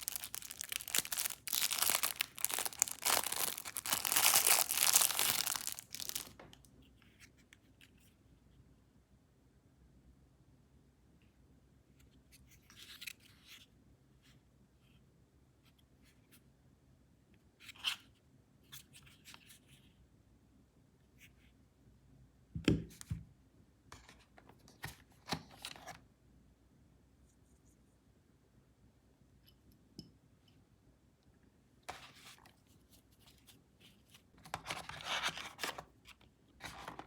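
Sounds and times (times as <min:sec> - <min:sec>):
packaging scraping and rustling: 0:00.0 - 0:06.4.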